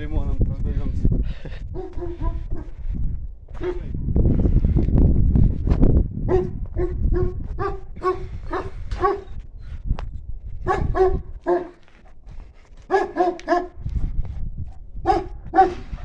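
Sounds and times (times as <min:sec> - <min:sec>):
large dog barking: 0:01.7 - 0:02.8, 0:03.6 - 0:03.9, 0:06.3 - 0:09.4, 0:10.6 - 0:11.9, 0:12.9 - 0:13.8, 0:15.0 - 0:16.0.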